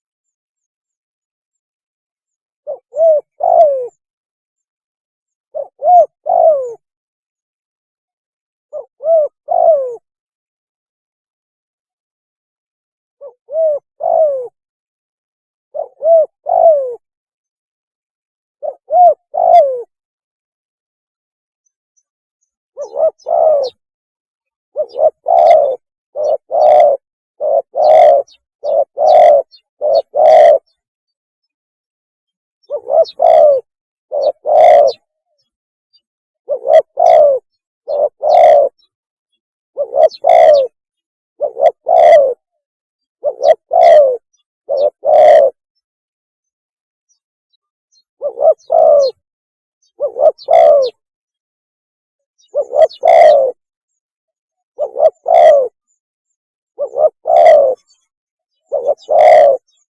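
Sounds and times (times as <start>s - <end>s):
dove cooing: 2.6s - 4.0s, 5.5s - 6.9s, 8.7s - 10.1s, 13.2s - 14.6s, 15.7s - 17.1s, 18.6s - 20.0s, 22.8s - 23.8s, 24.8s - 30.8s, 32.6s - 35.1s, 36.5s - 38.9s, 39.8s - 40.8s, 41.4s - 42.5s, 43.2s - 45.6s, 48.2s - 49.2s, 50.0s - 51.0s, 52.4s - 53.6s, 54.8s - 55.8s, 56.8s - 57.9s, 58.6s - 59.7s.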